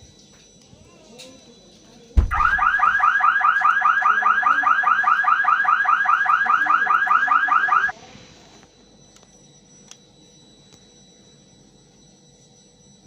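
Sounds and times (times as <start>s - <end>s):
electronic car alarm warble: 2.2s - 7.9s.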